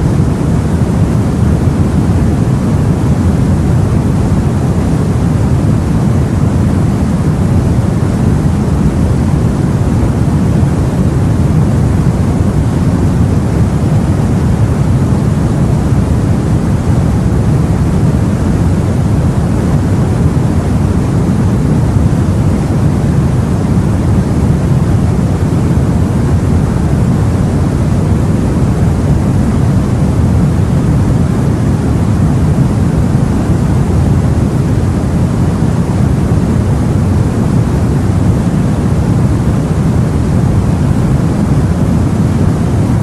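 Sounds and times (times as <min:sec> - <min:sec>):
wind noise: 0:00.0 - 0:43.0.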